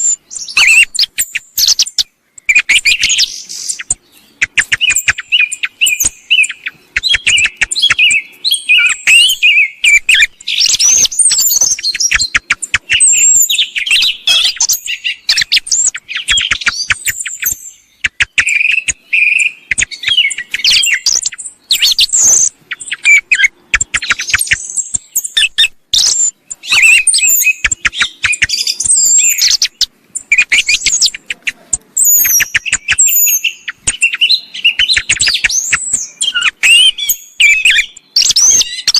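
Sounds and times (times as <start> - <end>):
song thrush song and calls: 0.0 - 38.9.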